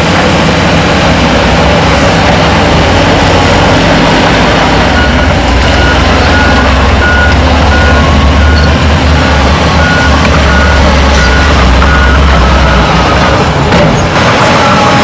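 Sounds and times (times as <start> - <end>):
diesel machinery engine running: 0.0 - 15.0
reversing alarm beeping: 4.9 - 13.2.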